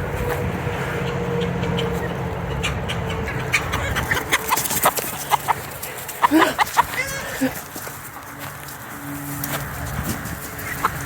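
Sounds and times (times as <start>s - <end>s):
vehicle engine droning: 0.0s - 11.0s
chicken clucking: 0.2s - 8.3s, 9.4s - 11.0s.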